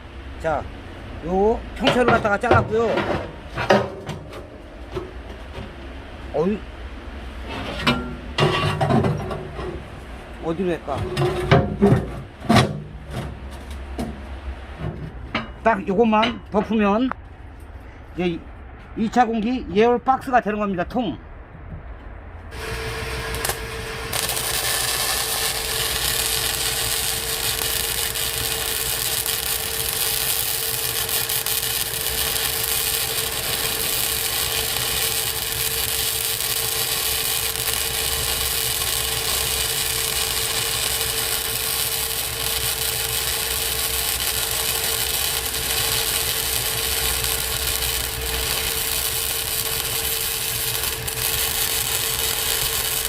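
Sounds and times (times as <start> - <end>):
arc welding crackling hiss: 22.5 - 53.0.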